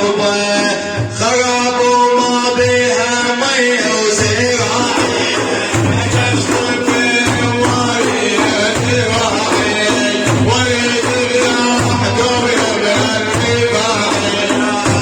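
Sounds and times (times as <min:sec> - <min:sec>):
jingling frame drums: 0:03.8 - 0:15.0.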